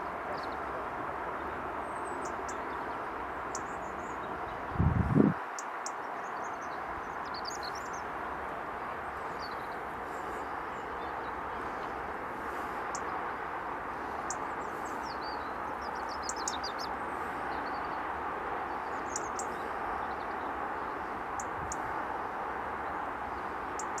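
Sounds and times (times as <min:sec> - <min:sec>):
distant road traffic: 0:00.0 - 0:24.0.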